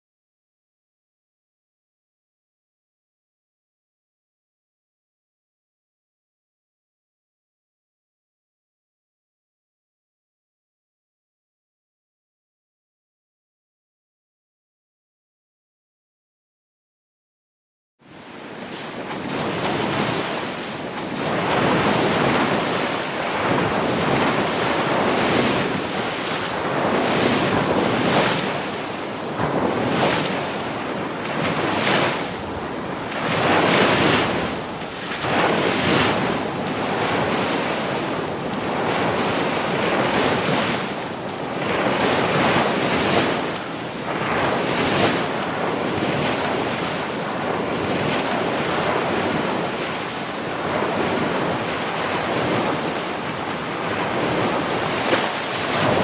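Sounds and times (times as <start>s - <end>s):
ocean waves breaking: 18.1s - 56.0s.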